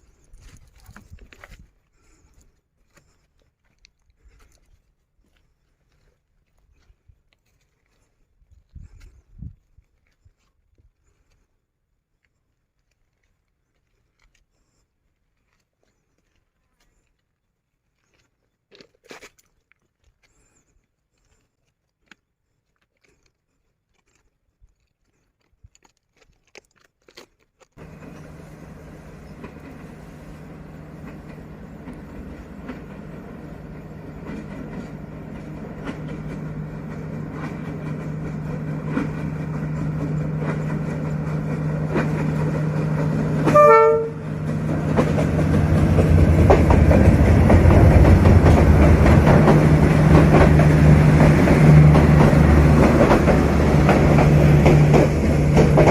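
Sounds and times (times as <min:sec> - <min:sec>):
locomotive engine humming: 0:27.8 - 0:55.9
train horn blast: 0:43.3 - 0:44.5.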